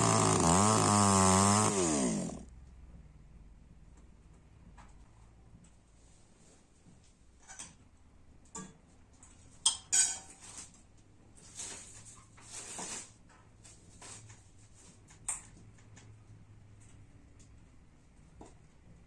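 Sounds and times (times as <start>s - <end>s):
utensils clinking against dishes: 9.6s - 10.6s.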